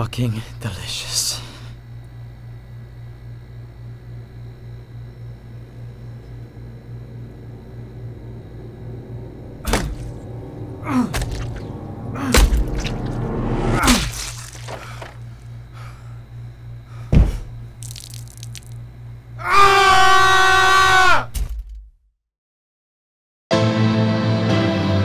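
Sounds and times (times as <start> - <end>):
steady low hum: 0.0 - 19.4
heavy thudding hits: 9.6 - 13.1, 17.1 - 17.6.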